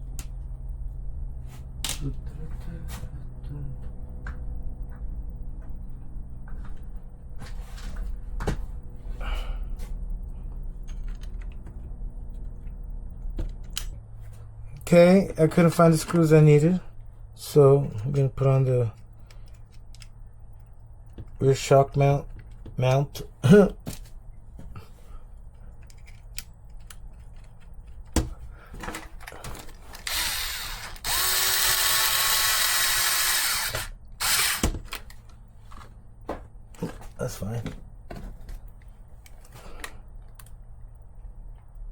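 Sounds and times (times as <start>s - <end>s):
steady low hum: 0.0s - 41.9s
small clicks of parts: 19.0s - 21.4s, 25.6s - 28.2s, 38.8s - 40.6s
sharp clicks and knocks of tools: 25.7s - 28.3s
cordless drill running: 30.0s - 34.8s.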